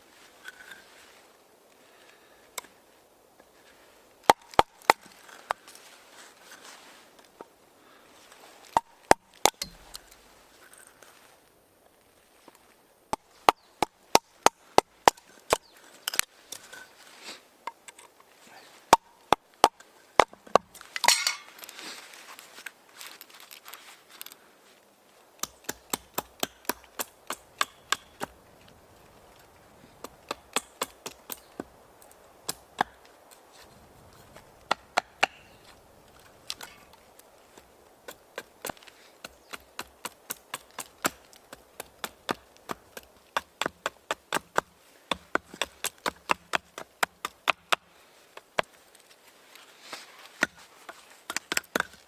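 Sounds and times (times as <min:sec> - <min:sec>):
chopping wood: 0:04.2 - 0:05.2, 0:08.7 - 0:10.2, 0:13.1 - 0:16.2, 0:18.9 - 0:21.5, 0:25.4 - 0:28.8, 0:29.9 - 0:33.2, 0:34.2 - 0:37.0, 0:37.6 - 0:47.9, 0:50.4 - 0:52.0.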